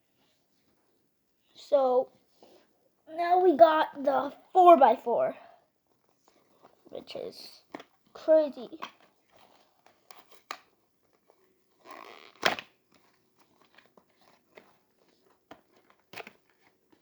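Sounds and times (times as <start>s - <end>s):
packaging rustling and crinkling: 8.9s - 17.0s.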